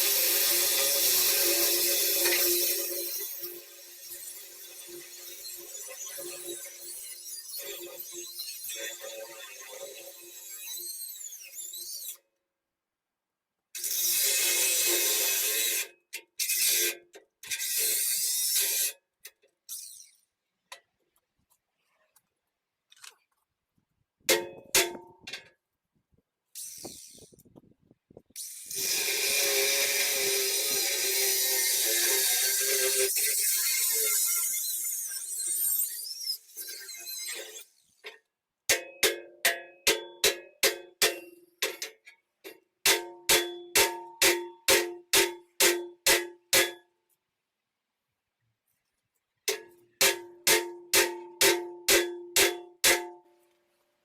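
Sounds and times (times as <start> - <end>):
power tool working metal: 0.0 - 7.8, 28.4 - 37.7
hammer striking steel: 24.3 - 25.2, 38.7 - 41.8, 42.9 - 46.8, 49.5 - 53.2.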